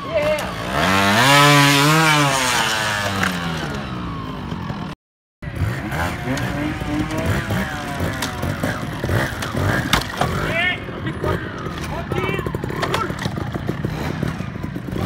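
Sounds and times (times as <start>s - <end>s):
motorcycle engine revving: 0.0s - 15.0s
motorcycle engine blipping with clatter: 5.5s - 15.0s.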